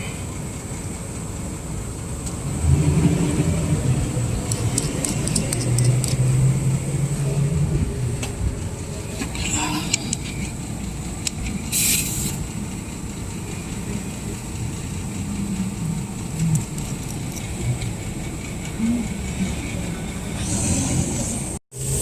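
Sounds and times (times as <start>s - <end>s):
low traffic rumble: 0.0s - 22.0s
air hissing from tire valve: 9.6s - 13.3s.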